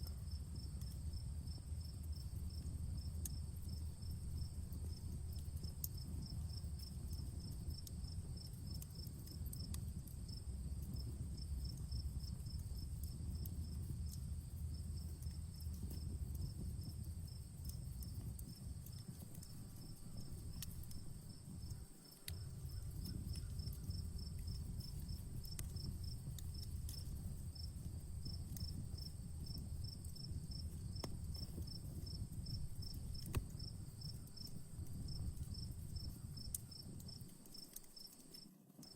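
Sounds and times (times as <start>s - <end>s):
campfire crackling: 0.0s - 38.9s
crickets chirping: 0.0s - 38.9s
low rumble of fire: 0.0s - 38.9s.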